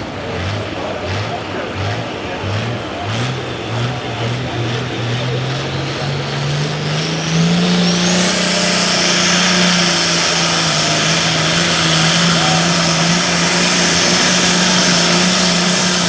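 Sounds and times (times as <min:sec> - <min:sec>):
diesel tractor engine revving: 0:00.0 - 0:16.0
high turbo whine: 0:00.0 - 0:16.0.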